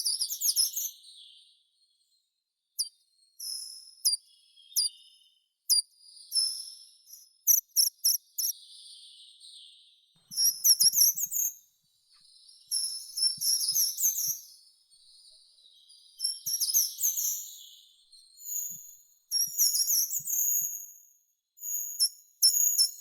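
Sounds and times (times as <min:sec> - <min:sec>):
songbirds singing: 0:00.0 - 0:20.8.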